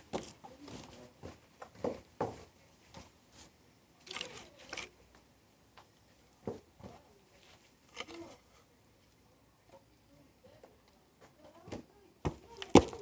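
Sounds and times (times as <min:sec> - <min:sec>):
rustles and scrapes of handling: 0:00.1 - 0:05.2, 0:06.0 - 0:09.3.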